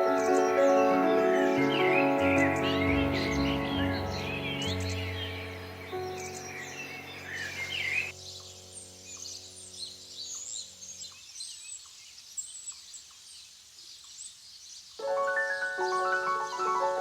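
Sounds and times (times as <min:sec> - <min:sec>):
held music chord: 0:00.0 - 0:08.2
small birds chirping: 0:00.0 - 0:17.0.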